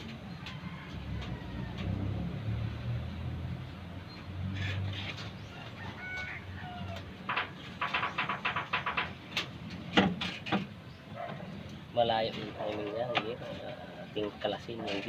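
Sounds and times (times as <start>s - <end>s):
chickens clucking: 12.2s - 15.0s.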